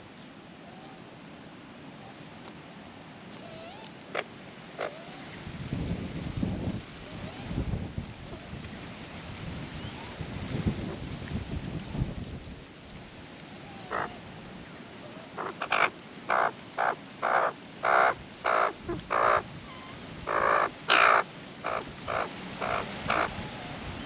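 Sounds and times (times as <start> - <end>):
magpie harsh calls: 15.4 - 19.4, 20.3 - 23.3.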